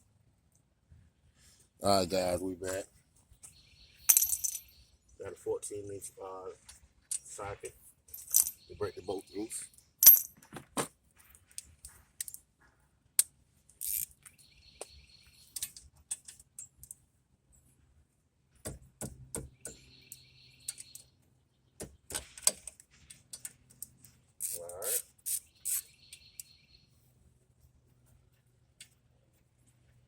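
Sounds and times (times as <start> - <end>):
metal tools clinking: 4.1 - 4.7, 8.1 - 10.5
ratchet wrench clicking: 13.8 - 14.1, 24.4 - 25.8.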